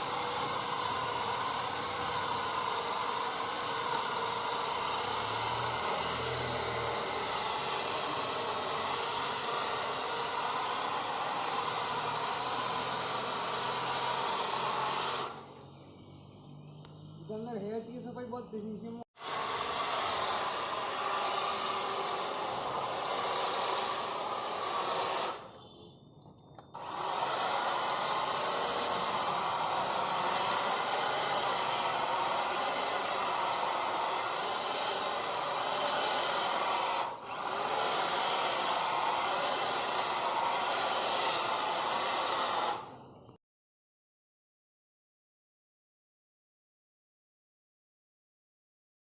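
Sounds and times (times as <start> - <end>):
electric cutting machine motor: 0.0 - 15.5, 19.2 - 25.5, 26.8 - 42.9.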